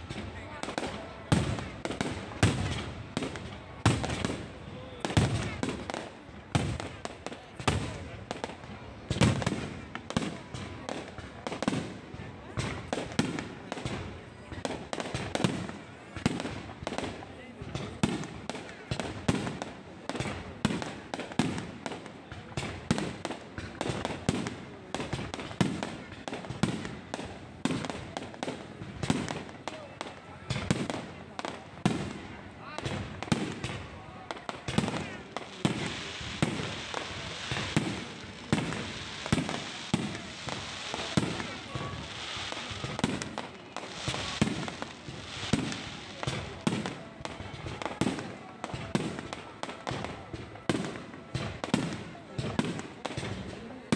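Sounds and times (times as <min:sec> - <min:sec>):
fireworks bangs: 0:00.0 - 0:53.9.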